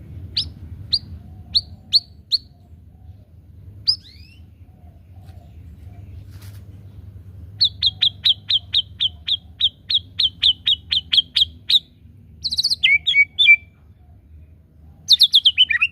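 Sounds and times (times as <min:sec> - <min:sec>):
bird singing: 0:00.1 - 0:15.9.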